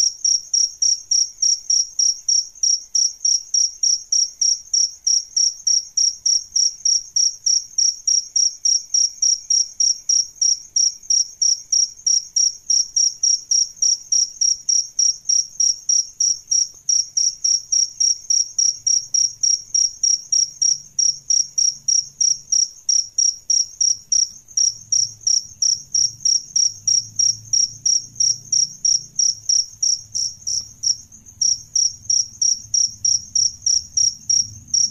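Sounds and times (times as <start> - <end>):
cricket chirping: 0.0 - 34.9.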